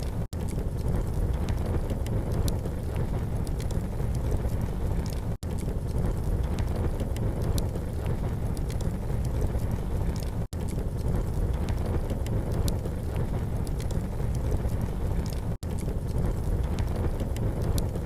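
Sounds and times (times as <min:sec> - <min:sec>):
campfire crackling: 0:00.0 - 0:18.0
fire pops: 0:00.0 - 0:18.0
low rumble: 0:00.0 - 0:18.0.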